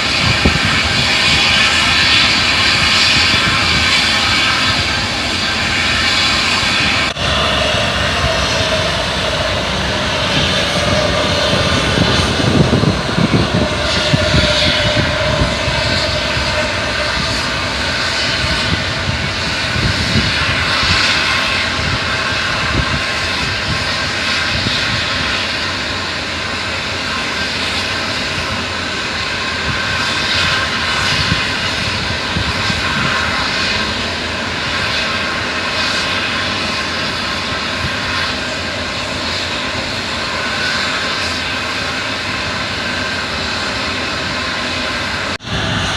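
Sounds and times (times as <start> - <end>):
diesel truck engine running: 7.2 - 17.9.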